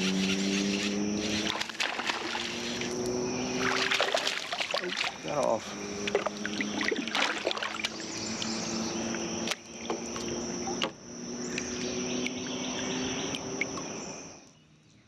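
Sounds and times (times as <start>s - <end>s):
high-pitched insect drone: 0.0s - 14.4s.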